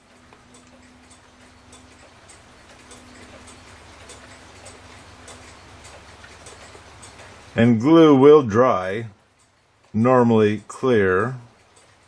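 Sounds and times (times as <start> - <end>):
mechanical clock ticking: 0.0 - 12.0.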